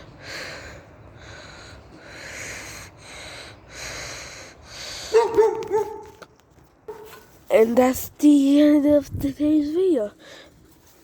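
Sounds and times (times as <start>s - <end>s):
person breathing heavily: 0.0s - 5.3s, 10.1s - 10.8s.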